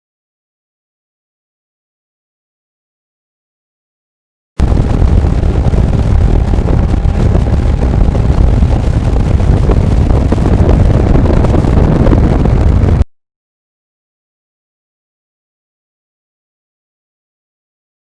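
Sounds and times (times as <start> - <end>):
motorcycle engine: 4.6 - 13.0
wind buffeting microphone: 4.6 - 13.0.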